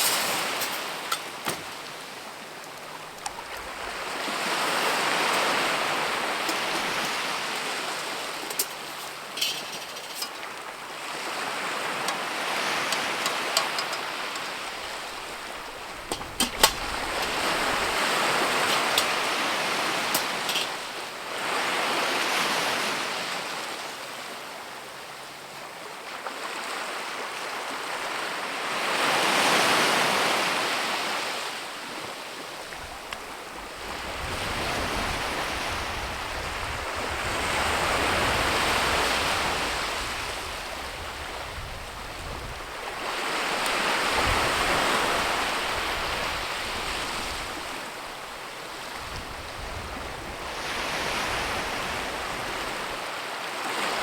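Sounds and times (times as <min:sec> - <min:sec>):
wind blowing in gusts: 0:00.0 - 0:22.7, 0:32.7 - 0:53.1.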